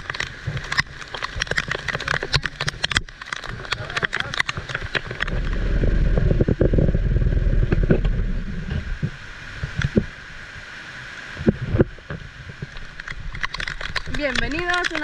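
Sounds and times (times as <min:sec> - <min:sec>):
heavy rain hissing: 0:03.5 - 0:15.0
loud low rumble: 0:05.3 - 0:10.2.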